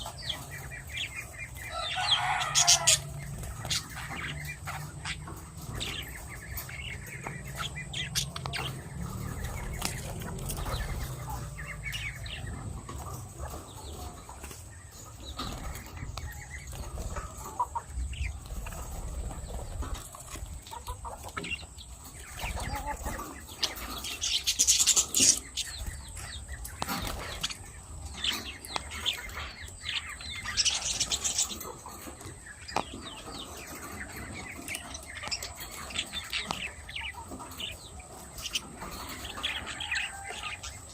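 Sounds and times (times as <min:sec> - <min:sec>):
bird calls: 0:00.0 - 0:40.9
wings flapping: 0:08.1 - 0:11.5.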